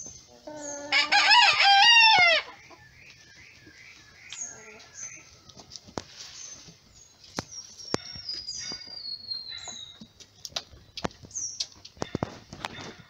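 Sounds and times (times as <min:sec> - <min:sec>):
birds chirping: 0:00.0 - 0:13.0
sharp clicks and ticks: 0:10.2 - 0:12.7.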